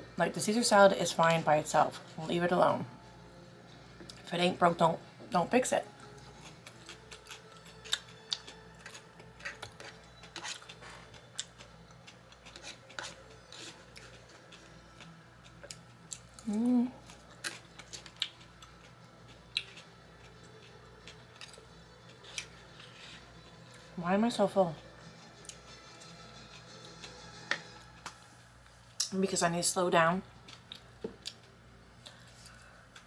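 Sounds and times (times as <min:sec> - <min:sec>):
crunchy chewing: 0:06.0 - 0:23.8
person humming: 0:16.4 - 0:17.0.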